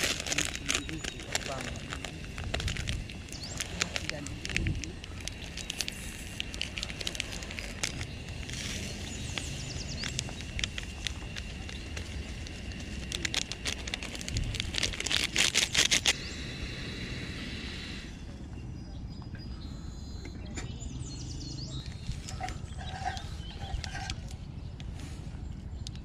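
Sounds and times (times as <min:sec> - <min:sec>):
plastic sachet crinkling: 0:00.0 - 0:16.2.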